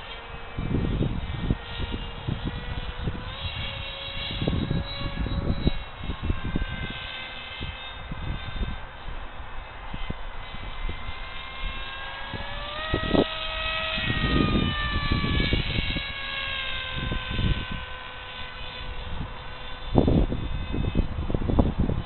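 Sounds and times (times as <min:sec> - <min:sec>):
model plane motor whine: 0:00.0 - 0:22.0
wind buffeting microphone: 0:00.0 - 0:22.0.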